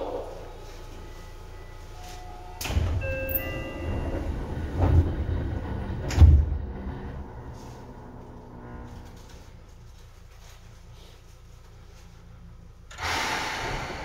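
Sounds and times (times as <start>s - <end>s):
train low rumble: 0.0s - 14.0s
heavy clunks: 2.6s - 8.1s.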